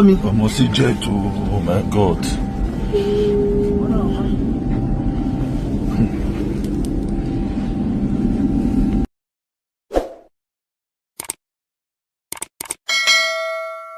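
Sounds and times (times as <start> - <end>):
engine rumbling with whine: 0.0 - 9.1.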